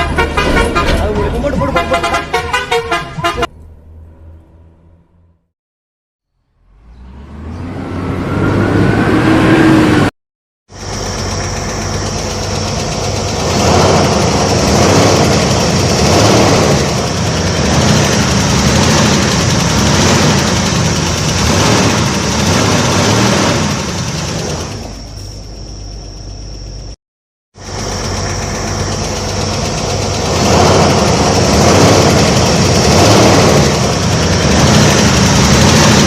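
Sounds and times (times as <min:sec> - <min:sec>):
vehicle engine running: 0:10.7 - 0:36.0.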